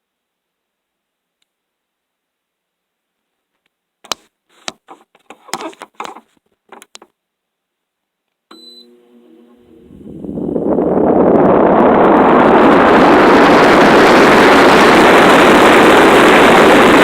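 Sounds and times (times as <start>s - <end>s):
sharp clicks and knocks: 4.0s - 7.1s
short beep: 8.5s - 9.0s
air conditioner humming: 8.6s - 12.5s
fan rushing air: 8.9s - 17.0s.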